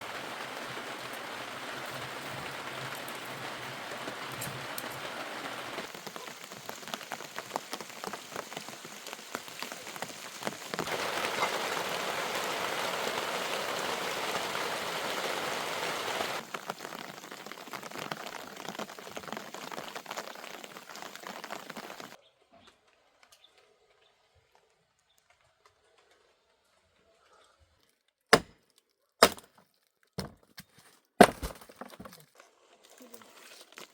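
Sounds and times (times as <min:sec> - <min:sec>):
raindrops pattering on surfaces: 0:00.0 - 0:22.2, 0:32.9 - 0:33.9
steady rain hiss: 0:00.0 - 0:22.2.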